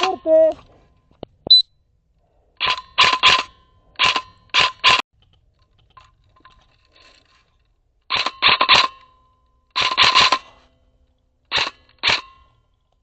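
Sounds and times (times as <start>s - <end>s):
airsoft gun shots: 2.6s - 5.0s.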